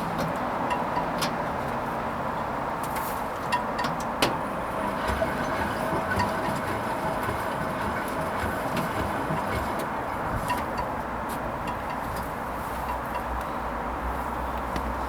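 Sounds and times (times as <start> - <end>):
washing machine running: 4.3 - 12.0.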